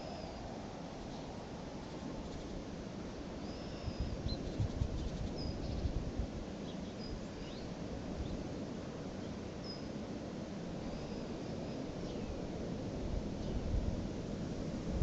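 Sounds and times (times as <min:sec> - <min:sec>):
continuous low rumble: 0:00.0 - 0:15.0
small birds chirping: 0:03.4 - 0:06.0, 0:06.6 - 0:08.4
wind buffeting microphone: 0:03.8 - 0:08.6, 0:11.8 - 0:15.0.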